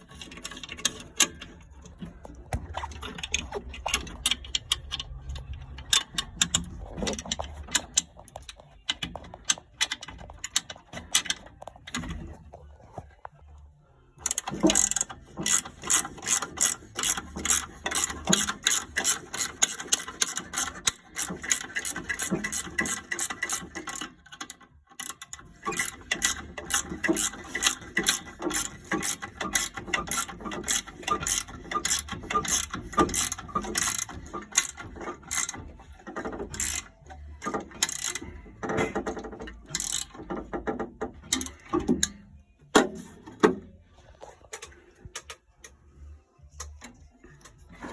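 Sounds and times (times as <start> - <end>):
ratchet tool clicking: 14.2 - 42.2.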